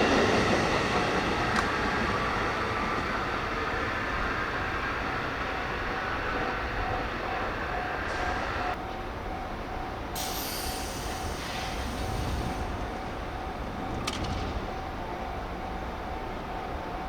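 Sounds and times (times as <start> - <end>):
air hiss: 10.2 - 13.3
train wheels squealing: 10.2 - 14.2.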